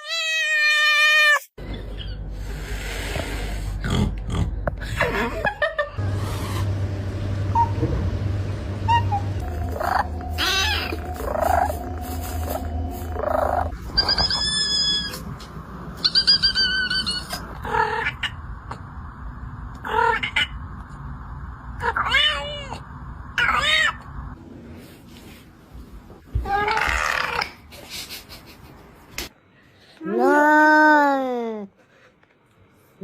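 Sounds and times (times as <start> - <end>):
cats crying: 9.0 - 12.0, 12.6 - 15.3, 16.0 - 18.4, 23.4 - 24.1
cats warbling chirps: 13.1 - 15.2, 16.0 - 18.4.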